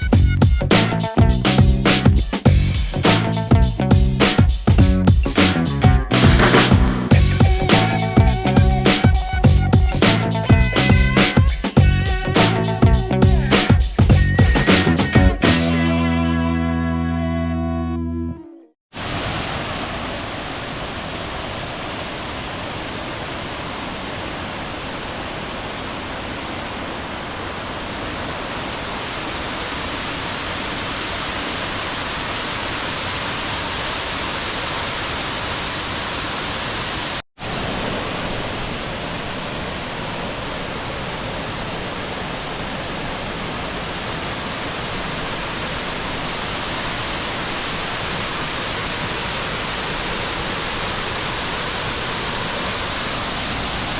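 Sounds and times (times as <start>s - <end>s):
waterfall rushing: 6.1s - 12.8s, 18.9s - 53.9s.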